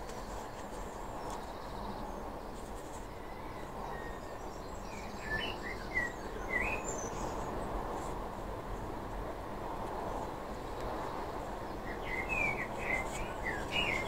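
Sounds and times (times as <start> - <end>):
low background noise: 0.0 - 14.0
bird chirps: 11.8 - 14.0.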